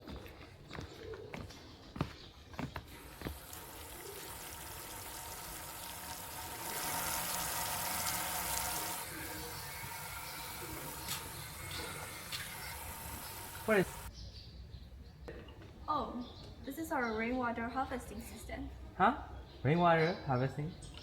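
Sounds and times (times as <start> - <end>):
water running from a tap: 2.9 - 14.1.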